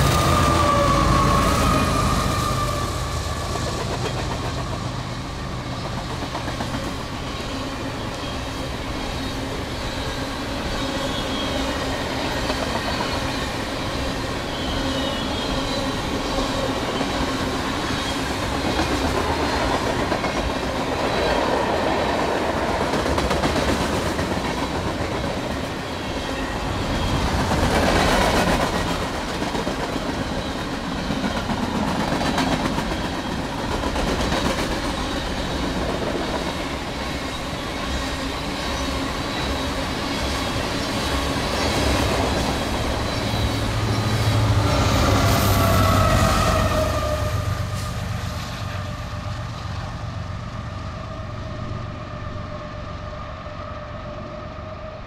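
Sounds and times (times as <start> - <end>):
train wheels clattering over joints: 3.5 - 8.3.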